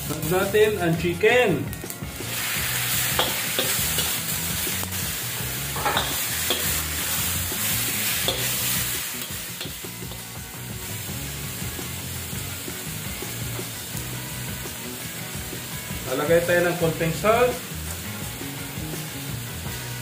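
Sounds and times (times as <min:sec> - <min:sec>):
chicken sizzling in hot oil: 0:00.0 - 0:20.0
metal ladle scraping a wok: 0:02.3 - 0:10.3.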